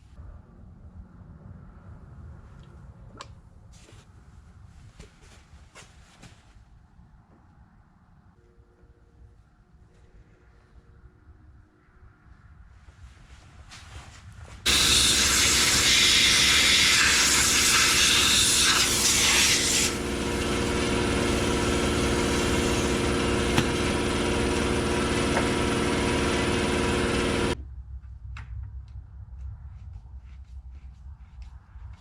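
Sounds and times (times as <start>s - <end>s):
chainsaw running at high revs: 14.7s - 27.6s.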